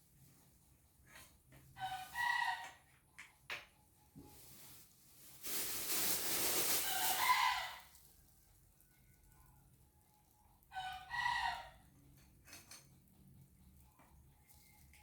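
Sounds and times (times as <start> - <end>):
chickens calling: 6.8 - 7.9, 10.7 - 11.8.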